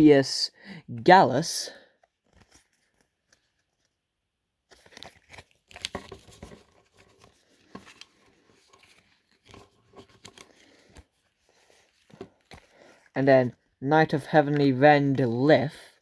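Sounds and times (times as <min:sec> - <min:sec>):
cards and plastic packaging rustling: 0:02.0 - 0:13.7.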